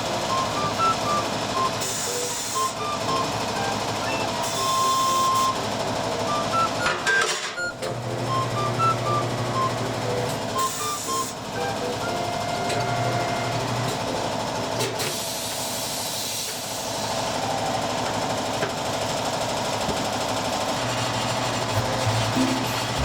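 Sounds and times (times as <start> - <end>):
background music: 21.7 - 23.0.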